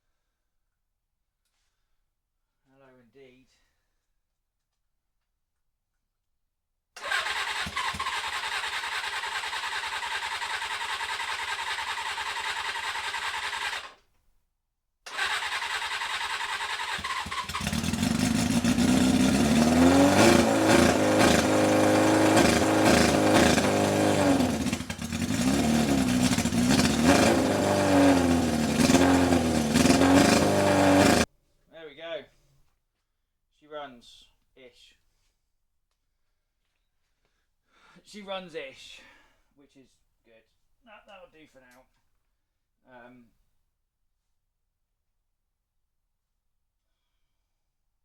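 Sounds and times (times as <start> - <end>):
motorcycle engine revving: 7.0 - 13.9, 15.1 - 31.3
electric starter cranking engine: 7.0 - 14.0, 15.1 - 31.3.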